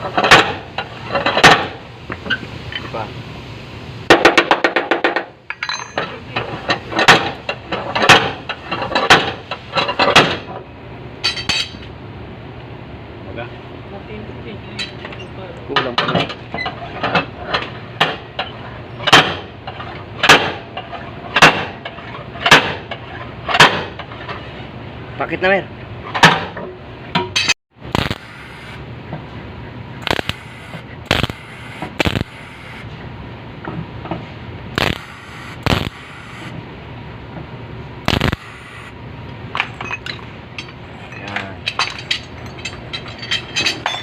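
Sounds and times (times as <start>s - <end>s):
metalworking on sheet metal: 38.1s - 38.9s, 39.6s - 44.0s.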